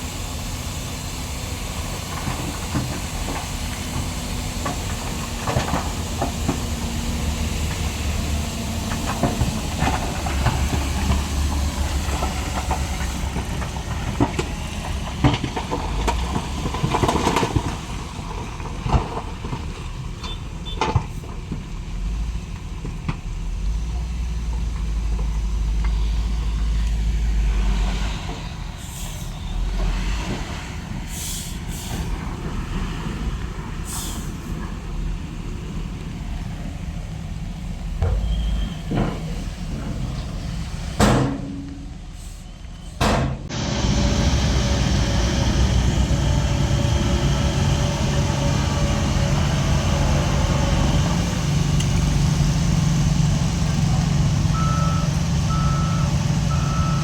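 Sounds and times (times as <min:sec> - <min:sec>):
diesel truck engine rumbling: 0:00.0 - 0:57.0
air brake hisses: 0:27.9 - 0:29.6, 0:31.1 - 0:32.1, 0:33.8 - 0:34.6, 0:42.1 - 0:43.0
reversing alarm beeping: 0:54.5 - 0:57.0.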